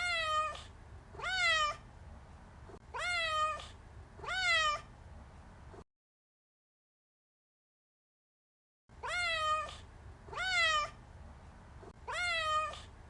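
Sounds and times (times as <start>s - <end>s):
cat meowing: 0.0s - 0.6s, 1.2s - 1.8s, 2.9s - 4.9s, 9.0s - 11.0s, 12.0s - 12.9s.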